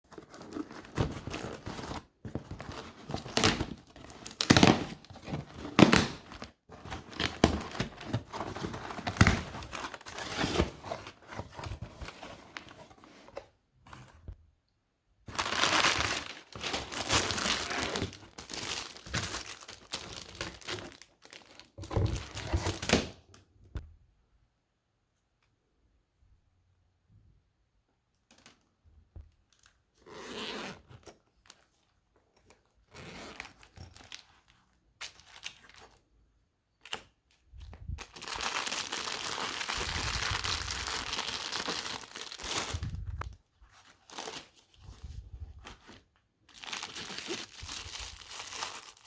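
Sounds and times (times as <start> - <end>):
packaging crinkling and tearing: 2.5 - 11.2, 15.3 - 23.1, 37.7 - 45.0, 45.6 - 49.0.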